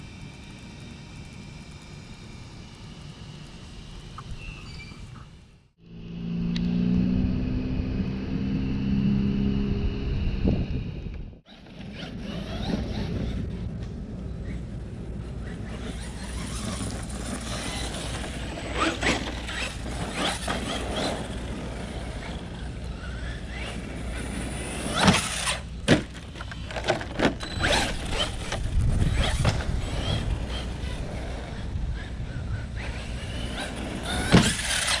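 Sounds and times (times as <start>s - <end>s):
faint electric motor whine: 0.0s - 6.9s, 9.4s - 35.0s
tyres on rough ground: 11.5s - 35.0s.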